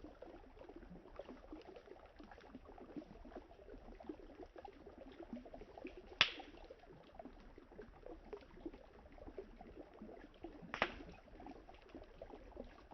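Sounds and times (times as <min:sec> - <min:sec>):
campfire crackling: 0:06.2 - 0:06.5, 0:10.7 - 0:11.1
burning wood cracking: 0:10.8 - 0:11.0.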